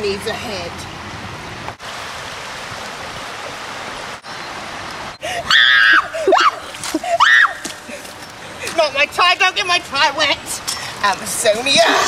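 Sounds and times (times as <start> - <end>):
stream water flowing: 0.0 - 12.0
person crying out: 5.2 - 7.6.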